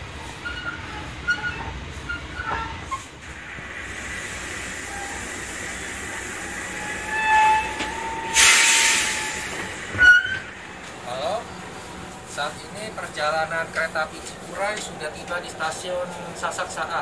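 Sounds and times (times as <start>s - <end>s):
brakes squealing: 0.0s - 3.2s, 4.7s - 17.0s
train coach rumble: 0.0s - 17.0s
air brakes hissing: 2.9s - 10.6s.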